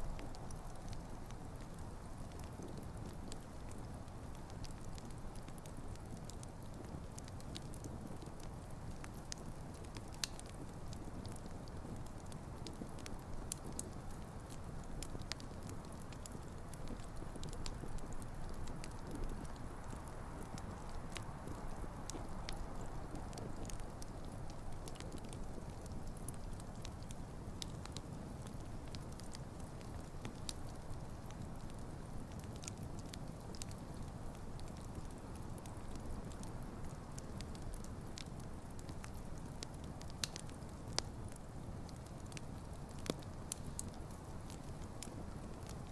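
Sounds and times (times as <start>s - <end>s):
fire crackling and popping: 0.0s - 45.9s
low rumble of flames: 0.0s - 45.9s.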